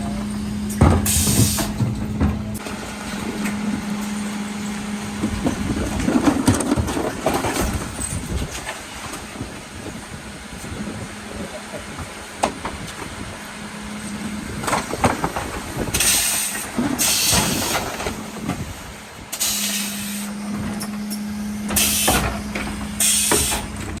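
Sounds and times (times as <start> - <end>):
clunks: 0.0 - 9.5, 11.9 - 13.3, 13.9 - 24.0
truck engine humming: 0.0 - 24.0
compressed air hisses: 19.4 - 20.3, 23.0 - 23.7.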